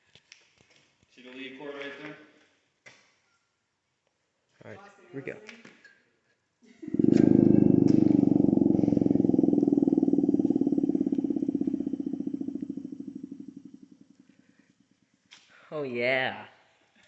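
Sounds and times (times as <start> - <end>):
siren rotor winding down: 6.9 - 14.4.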